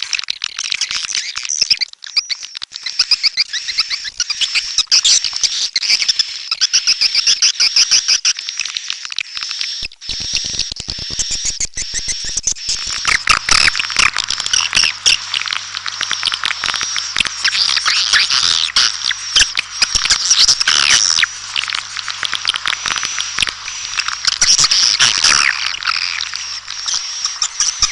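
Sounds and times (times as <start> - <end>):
swiftlets twittering: 9.3 - 27.9.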